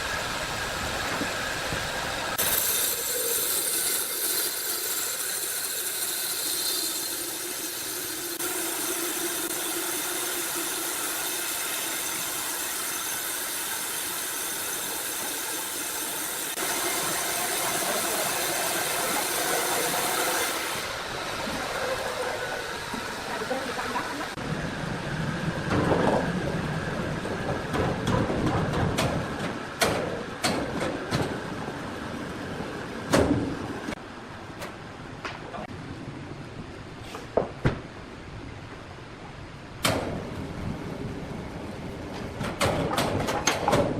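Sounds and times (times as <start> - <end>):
sawmill machinery humming: 0.0 - 34.1
sharp knocks and clatter: 27.3 - 31.4, 42.1 - 43.9.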